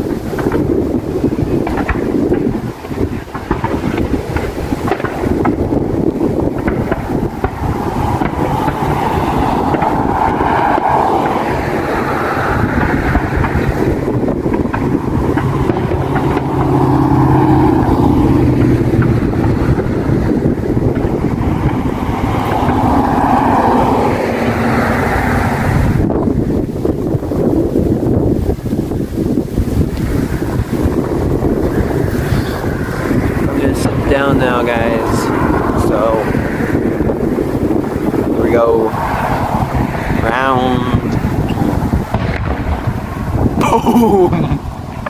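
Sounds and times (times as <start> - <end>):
highway traffic passing: 0.0 - 45.0
vehicle engine drone: 0.0 - 45.0
wind buffeting microphone: 0.0 - 45.0.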